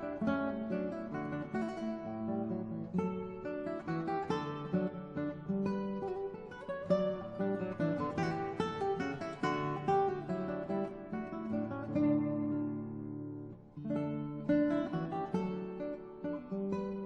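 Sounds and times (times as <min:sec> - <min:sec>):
acoustic guitar plucking and strumming: 0:00.0 - 0:17.0.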